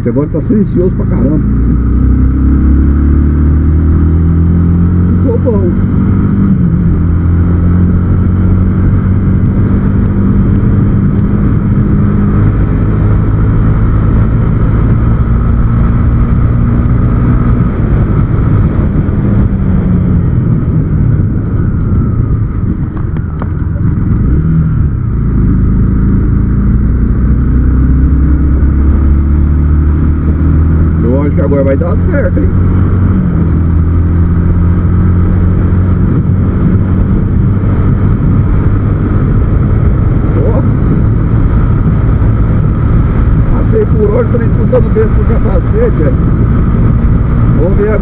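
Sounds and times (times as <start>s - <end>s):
light wind rush: 0.0s - 48.0s
motorcycle engine cruising: 0.0s - 48.0s.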